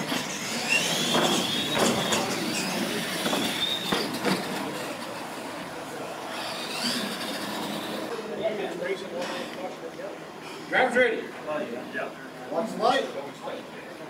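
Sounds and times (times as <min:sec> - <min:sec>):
toy truck motor whine: 0:00.0 - 0:05.2, 0:06.3 - 0:08.1.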